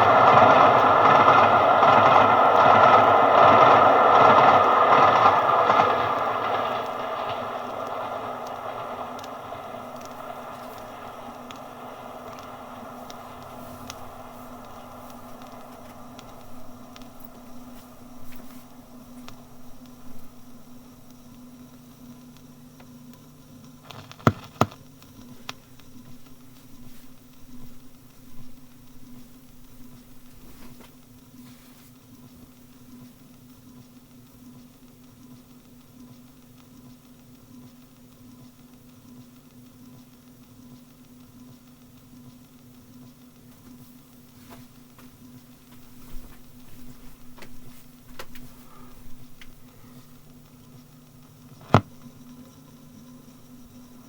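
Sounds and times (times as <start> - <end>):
train passing on track: 0.0 - 23.2, 24.3 - 31.0, 43.4 - 54.0
low hum: 0.0 - 23.3
disc surface crackle: 0.0 - 33.5, 43.3 - 54.0.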